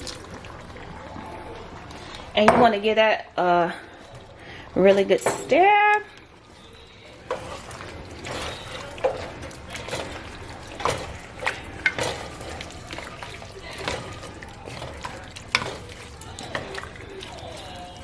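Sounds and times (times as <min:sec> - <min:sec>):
wet sloshing stirring: 0:00.0 - 0:18.0.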